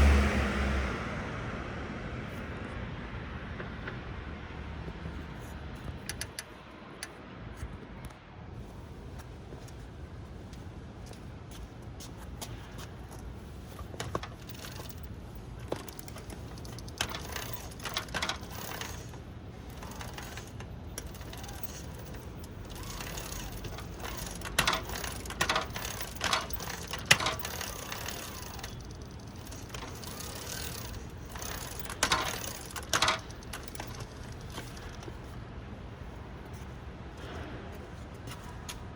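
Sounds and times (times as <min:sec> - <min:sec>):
bicycle drivetrain humming: 0:12.5 - 0:35.4
sharp metallic clattering: 0:14.0 - 0:35.2.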